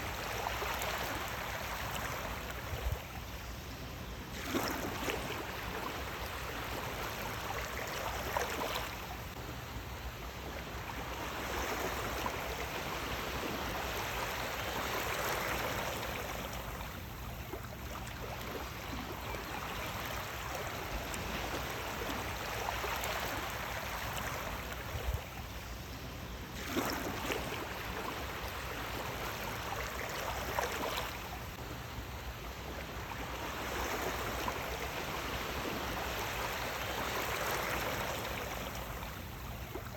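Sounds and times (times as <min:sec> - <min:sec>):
waves splashing: 0:04.3 - 0:09.1, 0:26.5 - 0:39.9.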